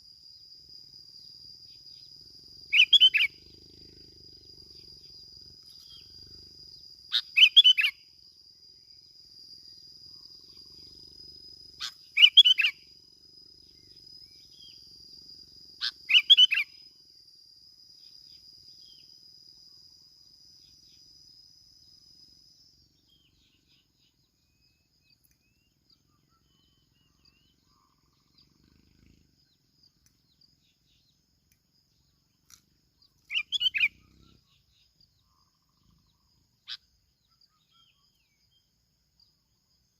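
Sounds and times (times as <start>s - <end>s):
high insect-like buzz: 0.0s - 39.9s
bulbul chirping: 33.3s - 34.4s.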